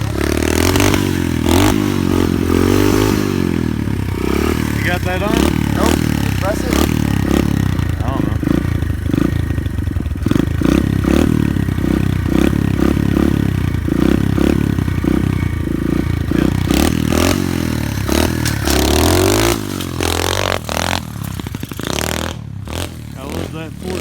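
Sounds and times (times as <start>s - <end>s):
motorbike engine revving: 0.0s - 24.0s.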